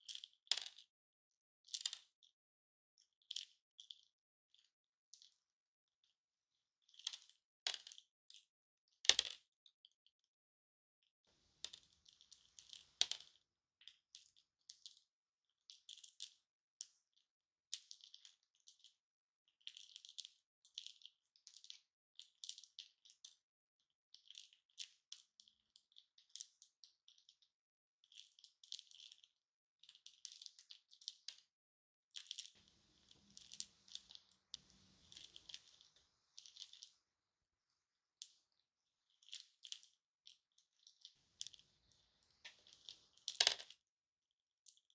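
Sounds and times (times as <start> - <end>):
candy pieces clicking and rattling: 42.6 - 43.8.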